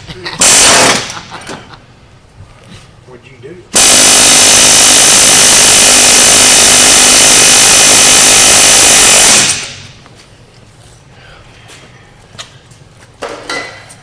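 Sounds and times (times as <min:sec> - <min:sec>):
power tool running: 0:00.4 - 0:01.3, 0:03.8 - 0:10.0.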